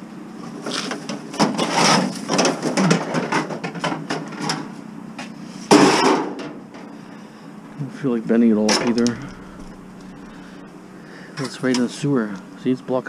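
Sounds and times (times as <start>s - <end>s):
steel sheets clanking and rattling: 5.7s - 6.6s.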